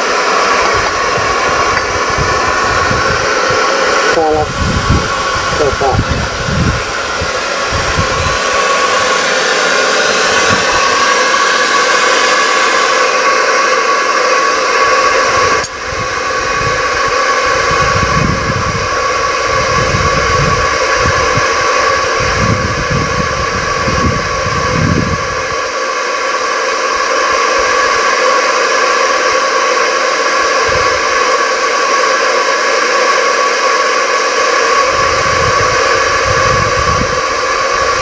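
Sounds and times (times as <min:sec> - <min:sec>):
electric air blower whining: 0:00.0 - 0:38.0
low rumbling gusts: 0:00.6 - 0:09.2, 0:15.0 - 0:25.6, 0:34.8 - 0:38.0.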